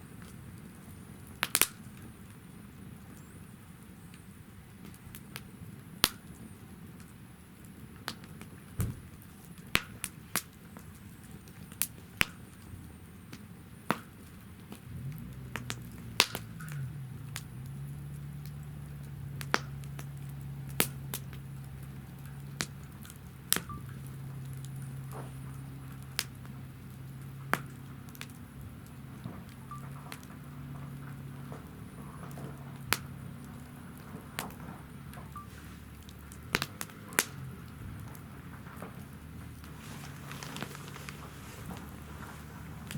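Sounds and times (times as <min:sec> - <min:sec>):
campfire crackling and popping: 0:00.0 - 0:42.9
low hum: 0:14.8 - 0:42.9.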